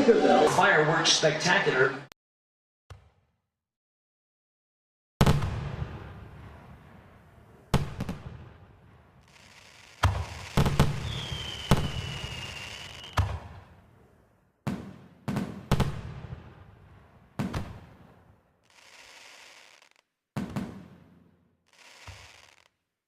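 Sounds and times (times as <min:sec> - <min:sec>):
fireworks bangs with booms: 0:05.2 - 0:13.8, 0:14.6 - 0:22.7
high firework whistle: 0:09.3 - 0:13.4, 0:18.7 - 0:20.0, 0:21.7 - 0:22.7.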